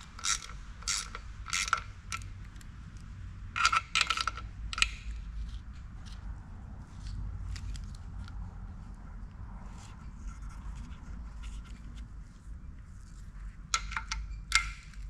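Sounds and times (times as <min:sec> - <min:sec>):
tools clicking on metal: 0:00.0 - 0:06.2, 0:13.7 - 0:15.0.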